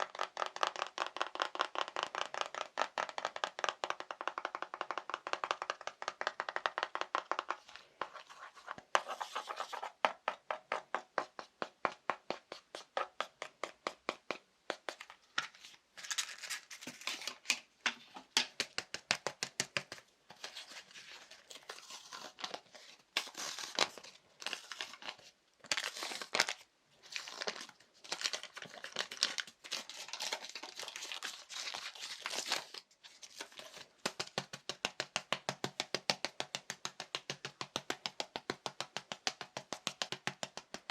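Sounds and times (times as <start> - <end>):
rapid tapping on objects: 0.0 - 8.2, 33.4 - 40.9.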